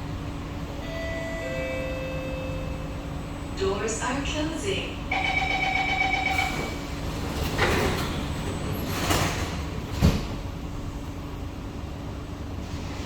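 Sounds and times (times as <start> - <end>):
train rumble: 0.0 - 13.0
door closing warning tone: 5.1 - 6.9.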